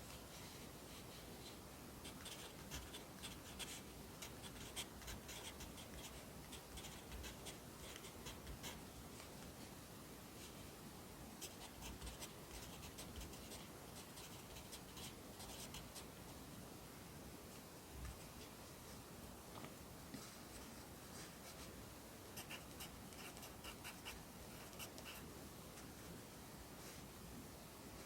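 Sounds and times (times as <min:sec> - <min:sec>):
pencil writing on paper: 0:02.0 - 0:08.8, 0:11.4 - 0:16.0, 0:22.4 - 0:25.2.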